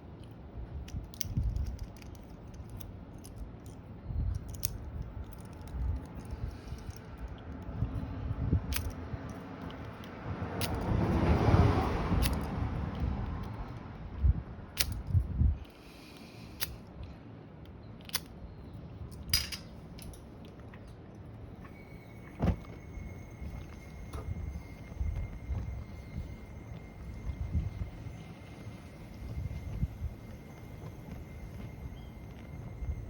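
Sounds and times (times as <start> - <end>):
metal camping gear clicking: 19.1 - 20.9.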